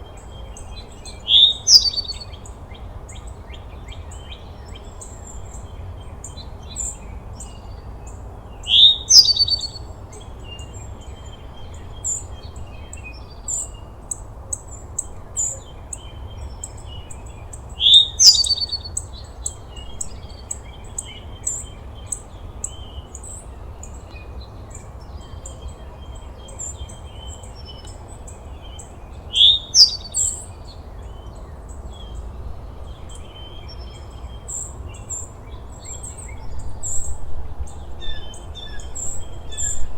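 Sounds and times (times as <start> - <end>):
bird rising call: 1.2 - 2.2, 8.7 - 9.8, 17.8 - 18.9, 29.3 - 30.4
high bird chirps: 1.2 - 2.3, 8.7 - 9.8, 17.8 - 19.0, 29.4 - 30.4.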